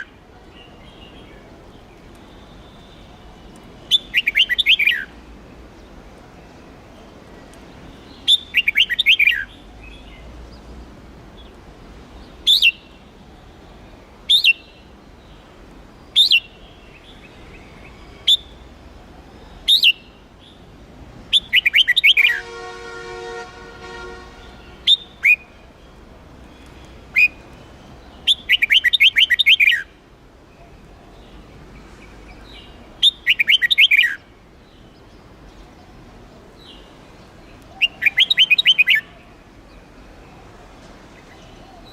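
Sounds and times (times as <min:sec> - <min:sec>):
bird chirping: 0:00.0 - 0:05.2, 0:07.8 - 0:10.8, 0:12.2 - 0:18.8, 0:19.4 - 0:20.6, 0:21.3 - 0:23.0, 0:23.6 - 0:36.0, 0:36.6 - 0:40.2
bird sharp calls: 0:28.2 - 0:29.9, 0:33.0 - 0:34.2, 0:37.7 - 0:39.2.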